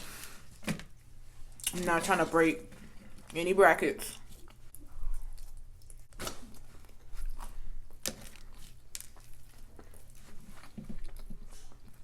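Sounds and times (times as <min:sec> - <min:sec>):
chewing: 0:04.2 - 0:12.0.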